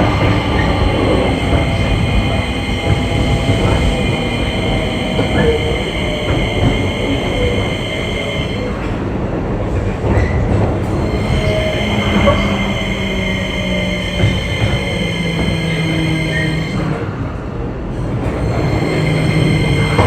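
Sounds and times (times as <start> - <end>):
train motor whine: 0.0 - 9.0, 10.8 - 17.2, 18.0 - 20.0
train wheels rumbling on rail: 0.0 - 20.0.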